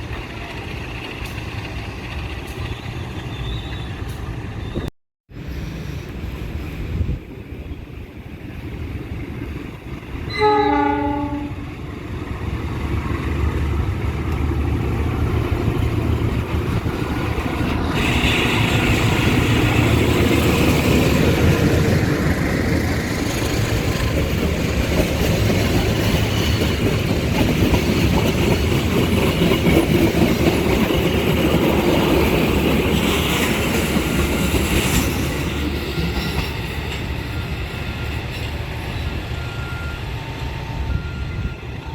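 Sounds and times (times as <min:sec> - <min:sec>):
train rumble and wheel noise: 0:00.0 - 0:41.9
train horn blast: 0:10.3 - 0:11.8.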